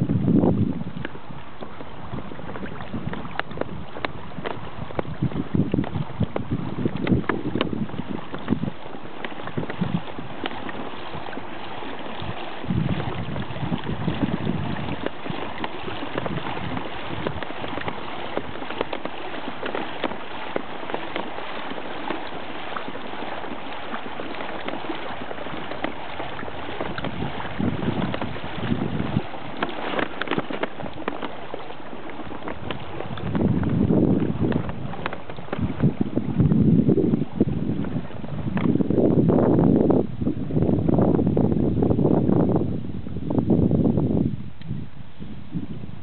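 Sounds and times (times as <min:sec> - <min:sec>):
wind buffeting microphone: 0:00.0 - 0:46.0
river water rushing: 0:01.0 - 0:38.9.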